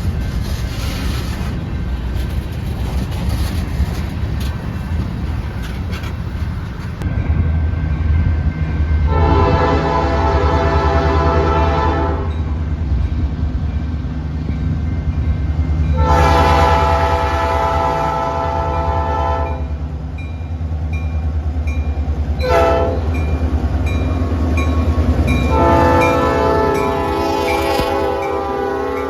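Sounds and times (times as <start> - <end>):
diesel engines rumbling: 0.0 - 12.0
locomotive horn blasts: 9.1 - 12.5, 15.9 - 19.7, 22.4 - 23.3, 25.3 - 29.0.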